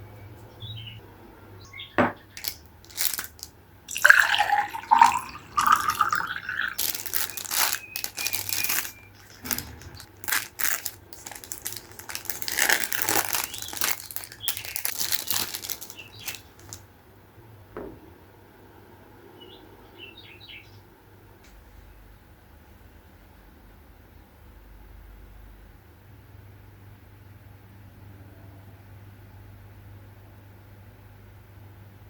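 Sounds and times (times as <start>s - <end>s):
packaging crinkling and rustling: 2.3s - 16.8s.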